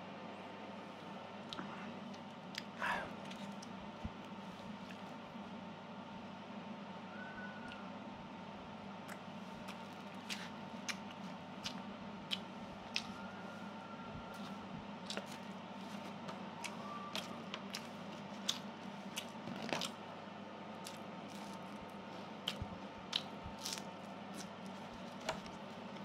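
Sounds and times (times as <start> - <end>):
steady low hum: 0.0 - 26.0
person chewing food: 9.1 - 13.2, 14.3 - 20.0, 20.8 - 26.0
mouth clicks and smacks: 10.2 - 13.2.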